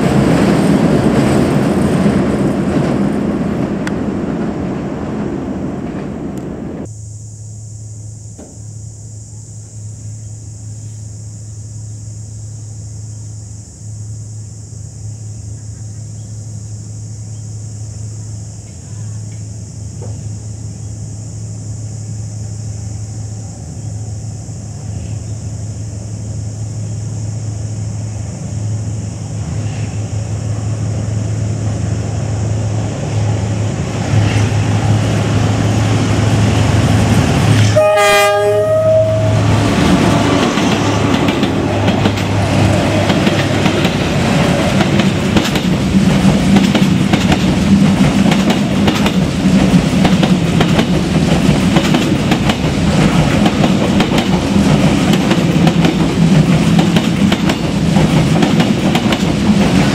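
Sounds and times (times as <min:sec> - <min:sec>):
locomotive engine hum: 0:00.0 - 0:59.9
train horn blast: 0:37.4 - 0:41.2
train wheels clickety-clack: 0:39.8 - 0:59.9.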